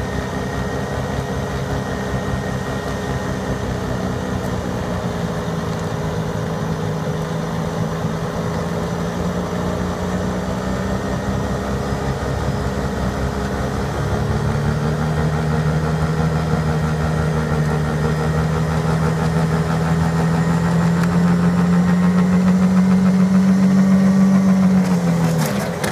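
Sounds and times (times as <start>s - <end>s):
engine drone with humming tone: 0.0s - 25.9s.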